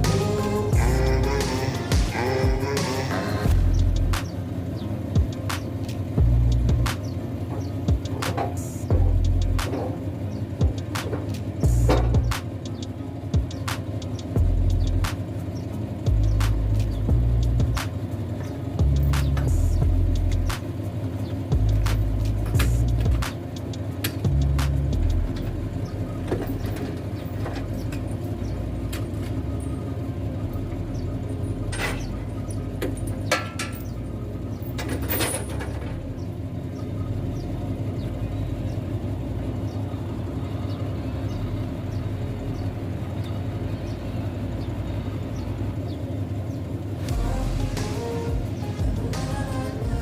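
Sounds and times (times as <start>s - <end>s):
diesel truck engine running: 0.0s - 50.0s
sharp metal knocks: 6.7s - 9.0s, 32.8s - 33.9s.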